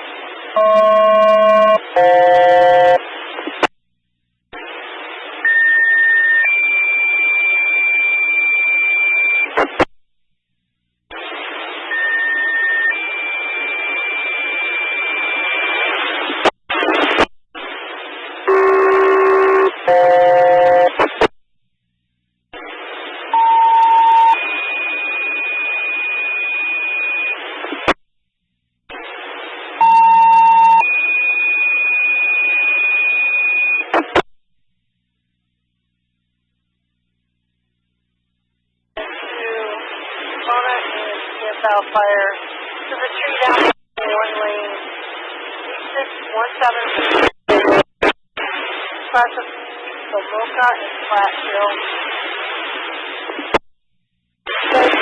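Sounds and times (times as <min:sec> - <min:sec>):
radio transmission hiss: 0:04.6 - 0:06.5, 0:11.1 - 0:20.0, 0:22.6 - 0:28.0, 0:39.0 - 0:53.6, 0:54.5 - 0:55.0.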